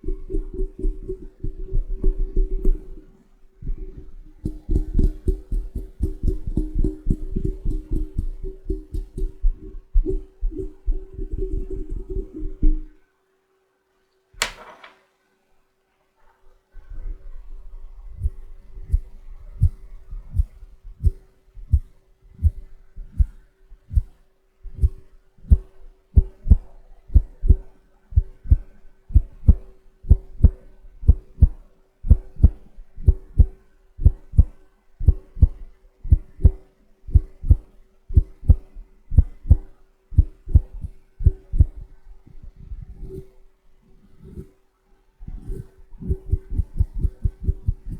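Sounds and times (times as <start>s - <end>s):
brush strokes on microphone: 41.6s - 44.6s, 45.2s - 47.9s.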